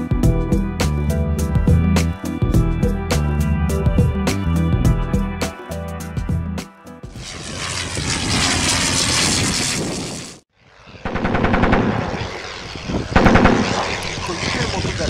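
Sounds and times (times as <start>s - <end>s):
aircraft engine drone: 7.1s - 15.0s.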